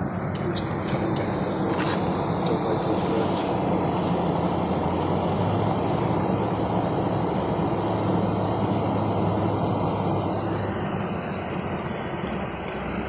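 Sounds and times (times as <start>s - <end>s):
pickup truck engine drone: 0.0s - 13.0s
tyre and road noise: 0.0s - 13.0s.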